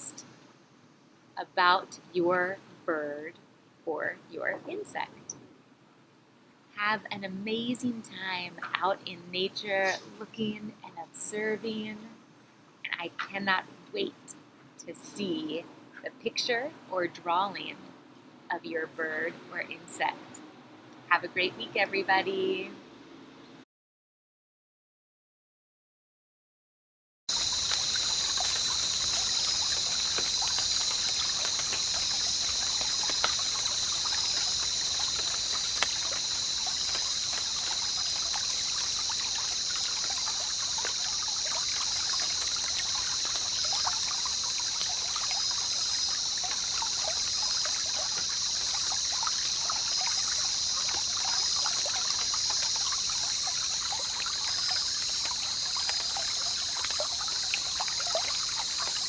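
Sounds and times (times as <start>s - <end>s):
water trickling and dripping: 27.3s - 59.0s.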